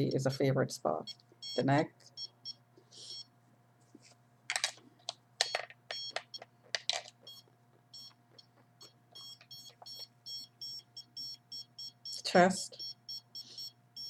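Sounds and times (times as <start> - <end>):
signal detector beeping: 1.1 - 3.3, 5.4 - 6.5, 7.2 - 8.2, 8.8 - 14.0.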